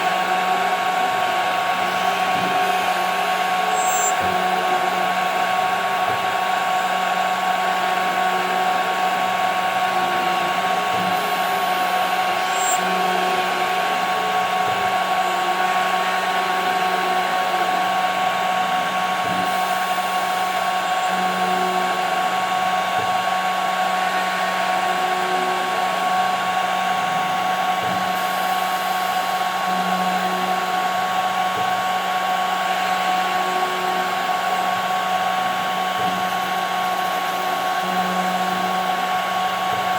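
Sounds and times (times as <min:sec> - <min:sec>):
low wavering tone: 0:00.0 - 0:05.7, 0:09.7 - 0:18.2
router spindle high whine: 0:00.0 - 0:39.9.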